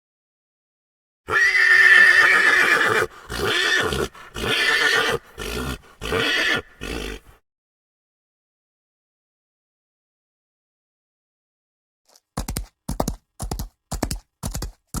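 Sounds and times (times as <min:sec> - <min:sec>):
horse whinnying: 0:01.3 - 0:07.4.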